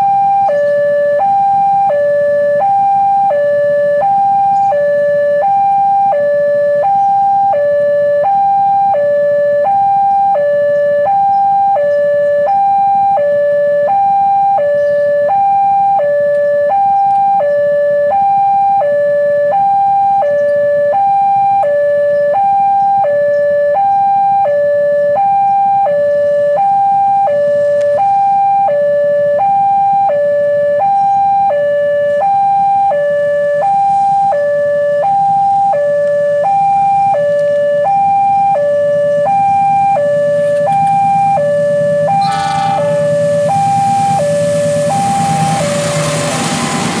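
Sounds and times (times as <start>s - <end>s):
level crossing two-tone alarm: 0.0s - 47.0s
low steady rumble: 31.6s - 47.0s.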